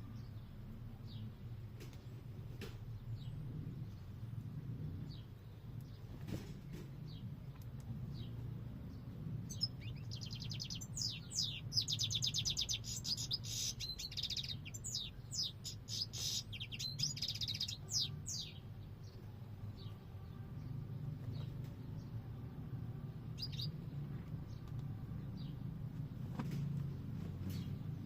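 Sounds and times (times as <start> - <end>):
steady low hum: 0.0 - 28.0
goldfinch twittering song: 9.4 - 19.2, 23.3 - 23.9.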